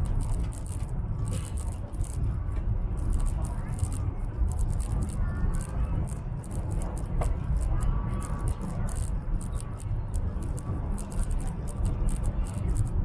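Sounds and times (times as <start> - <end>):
light irregular ticking: 0.0 - 13.0.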